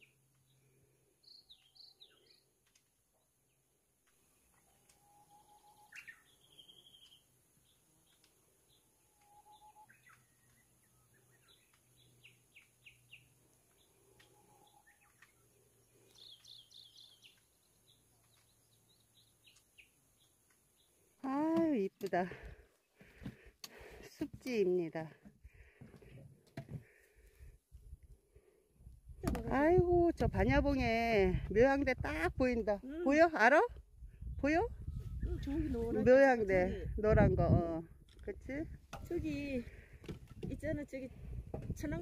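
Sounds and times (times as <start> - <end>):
high bird chirps and trills: 4.8 - 15.4.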